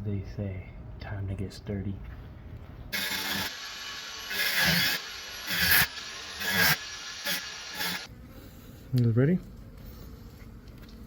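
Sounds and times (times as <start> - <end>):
hand saw cutting into wall: 3.0 - 8.1.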